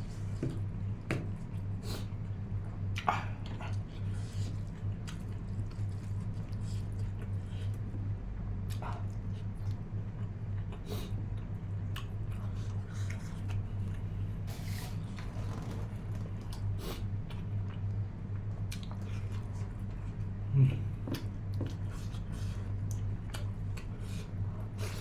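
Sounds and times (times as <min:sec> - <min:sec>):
steady low hum: 0:00.0 - 0:25.0
person chewing food: 0:02.9 - 0:07.9, 0:11.9 - 0:17.9, 0:18.6 - 0:25.0.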